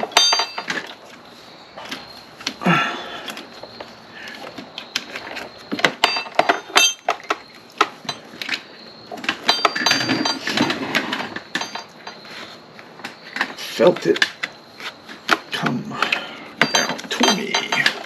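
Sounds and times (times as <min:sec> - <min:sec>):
metal parts and tools clinking: 0:00.0 - 0:01.0, 0:05.0 - 0:12.3, 0:15.4 - 0:18.0.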